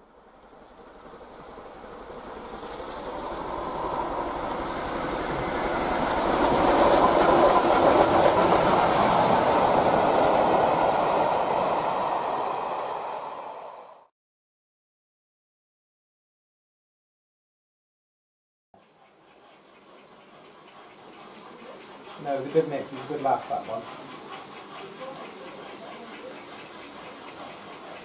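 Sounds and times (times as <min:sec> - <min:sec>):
train clickety-clack on rails: 0:00.2 - 0:13.0, 0:18.8 - 0:28.0.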